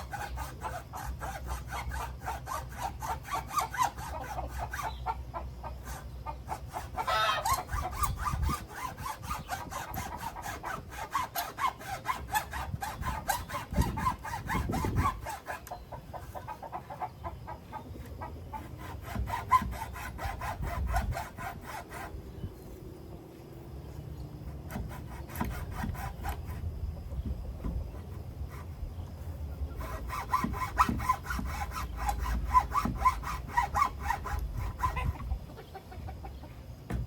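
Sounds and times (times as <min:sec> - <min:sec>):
hand saw cutting wood: 0:00.0 - 0:17.1, 0:18.0 - 0:22.5, 0:24.4 - 0:35.4
chickens clucking: 0:04.0 - 0:08.1, 0:15.6 - 0:18.8, 0:34.9 - 0:36.8.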